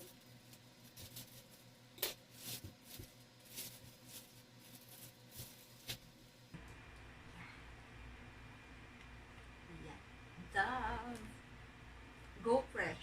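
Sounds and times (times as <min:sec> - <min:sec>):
packaging rustling and crinkling: 0:00.0 - 0:06.1
steady low hum: 0:00.0 - 0:13.0.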